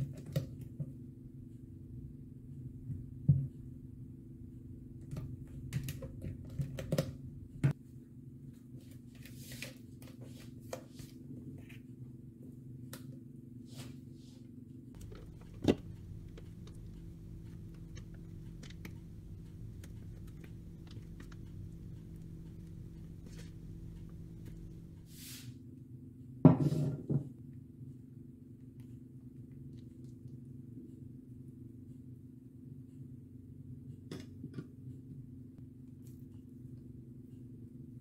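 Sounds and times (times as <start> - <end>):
steady low hum: 15.0 - 25.2.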